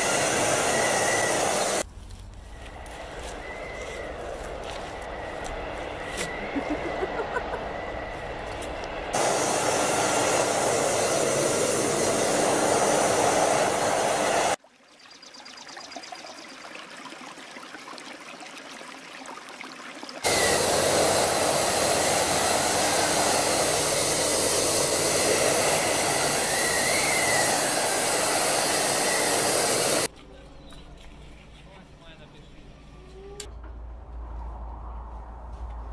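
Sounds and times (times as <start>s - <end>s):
machine noise with strong hiss: 0.0s - 1.8s, 2.5s - 14.6s, 20.2s - 30.1s.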